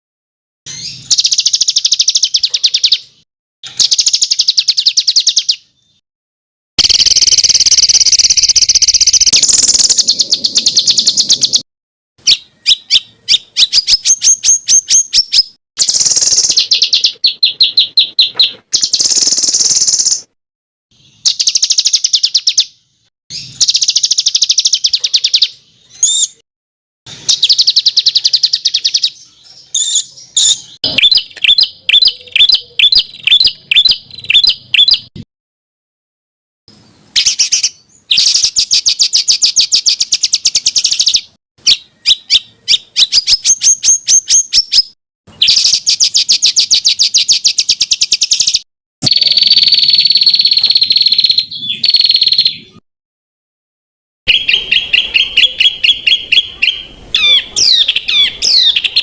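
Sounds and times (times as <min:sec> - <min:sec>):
songbird trilling: 0:00.7 - 0:03.1, 0:06.8 - 0:11.6, 0:12.2 - 0:20.3, 0:27.3 - 0:35.1, 0:37.2 - 0:52.8, 0:54.3 - 0:59.0.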